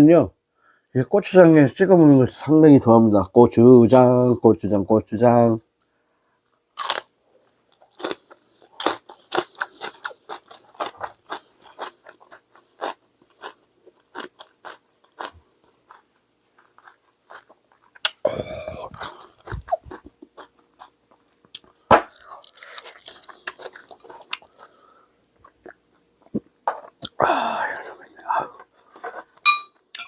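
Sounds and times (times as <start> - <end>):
crunching and chewing: 6.4 - 27.2.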